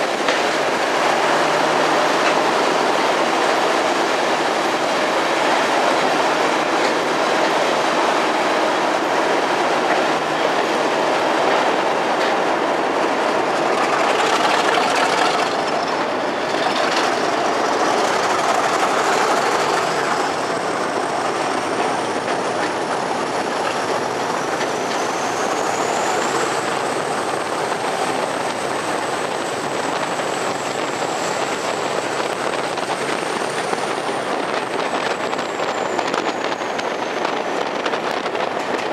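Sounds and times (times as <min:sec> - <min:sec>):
train rail clatter: 0:00.0 - 0:38.9
high wheel squeal: 0:13.0 - 0:38.9.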